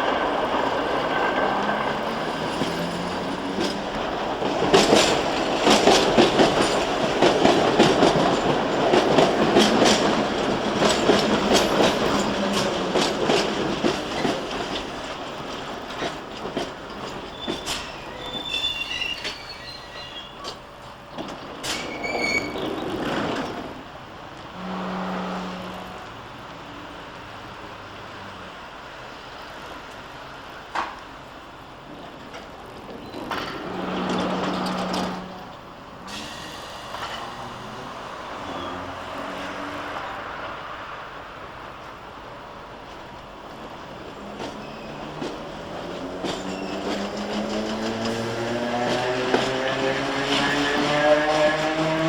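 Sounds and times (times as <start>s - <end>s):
train wheels clattering on rails: 0.0s - 24.5s, 28.7s - 40.8s, 41.7s - 52.0s
train wheel squeals: 16.9s - 23.5s, 32.9s - 37.5s, 38.4s - 39.3s, 44.3s - 49.5s.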